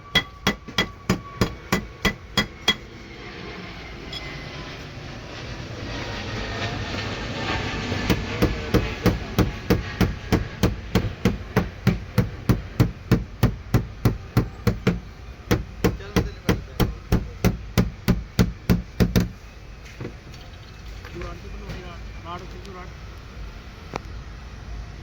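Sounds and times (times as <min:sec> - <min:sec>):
hammer striking sheet metal: 0:00.0 - 0:02.9, 0:08.1 - 0:18.5.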